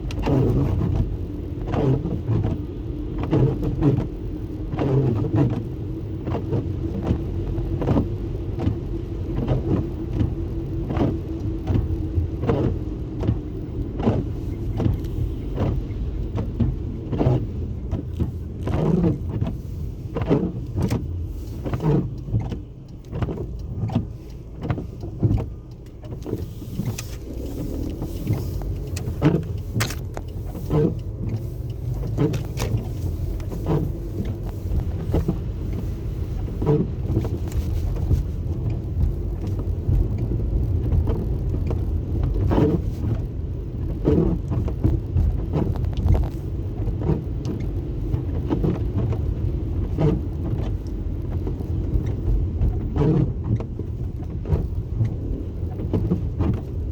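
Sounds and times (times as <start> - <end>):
car road rumble: 0.0 - 56.9
small knocks and clicks: 21.8 - 35.3.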